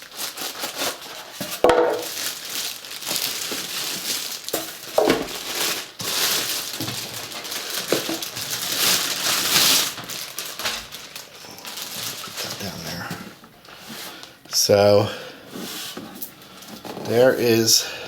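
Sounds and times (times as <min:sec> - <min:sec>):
packaging crinkling: 0:00.0 - 0:14.4.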